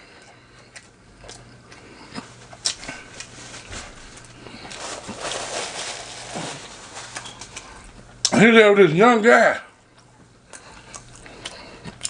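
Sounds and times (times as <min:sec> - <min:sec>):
person chewing: 0:00.0 - 0:03.4, 0:09.9 - 0:12.0.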